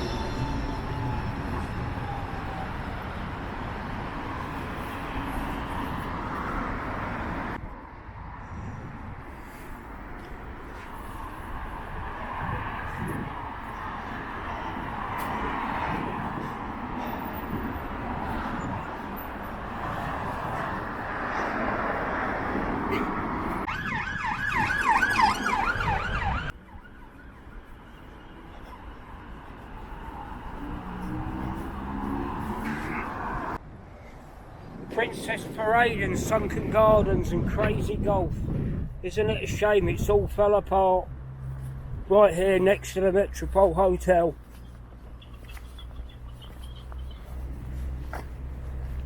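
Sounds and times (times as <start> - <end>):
wind buffeting microphone: 0.0 - 26.6, 27.4 - 42.2
road traffic noise: 0.0 - 49.0
street noise: 0.0 - 49.0
siren yelping: 23.7 - 29.2.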